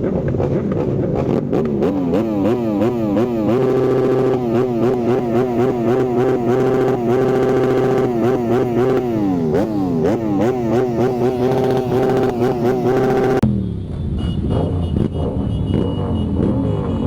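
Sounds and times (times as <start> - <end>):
motorcycle engine revving: 0.0 - 13.6, 14.5 - 17.0.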